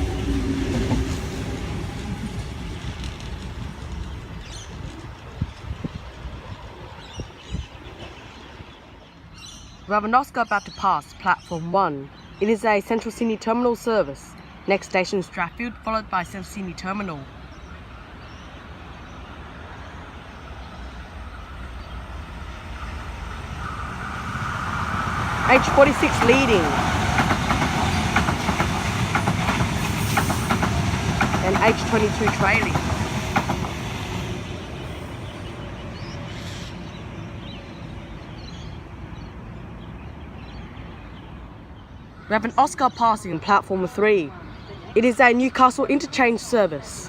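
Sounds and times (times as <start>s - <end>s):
train whine: 0.0s - 5.2s, 17.9s - 40.3s
electric train rumble: 0.0s - 7.1s, 17.3s - 40.7s.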